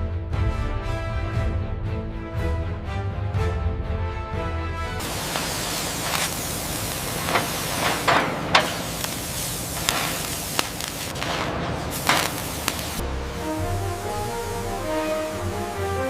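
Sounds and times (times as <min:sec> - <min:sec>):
background music: 0:00.0 - 0:05.4, 0:13.0 - 0:16.0
sharp cracks: 0:05.0 - 0:13.0
loud steady hiss: 0:05.0 - 0:16.0.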